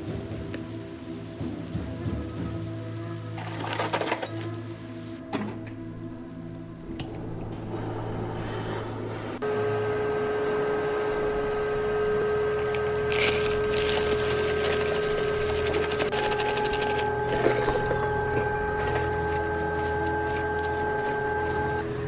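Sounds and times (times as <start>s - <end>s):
small electric motor humming: 7.3s - 22.0s
rasping scraping noise: 11.4s - 22.0s.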